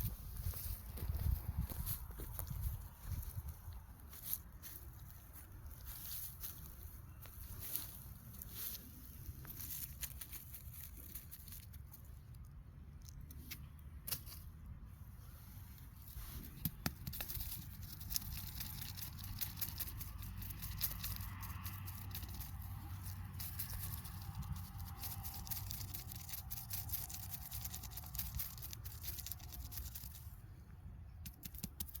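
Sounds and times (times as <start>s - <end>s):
footsteps crunching through leaves: 0.0s - 11.7s.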